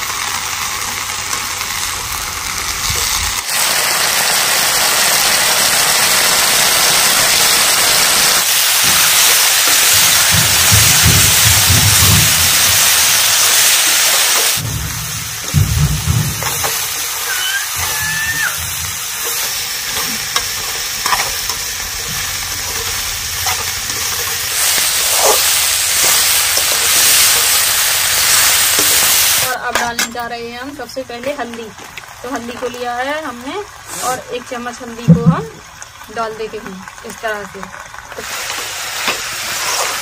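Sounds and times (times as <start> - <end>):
beans sizzling in oil: 0.0 - 40.0
metal spatula scraping a pan: 13.5 - 29.1, 39.0 - 40.0.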